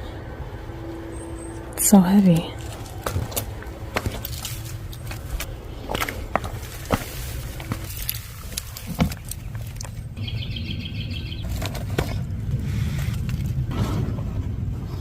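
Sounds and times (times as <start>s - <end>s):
steady low rumble: 0.0s - 15.0s
handling knocks and rustles: 2.3s - 10.2s, 11.4s - 14.2s
bird trilling: 10.2s - 11.5s.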